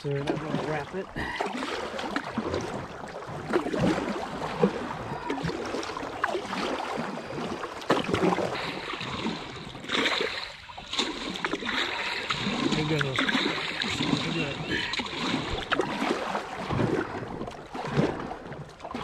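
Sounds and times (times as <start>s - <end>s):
paddle strokes splashing: 0.0s - 19.0s.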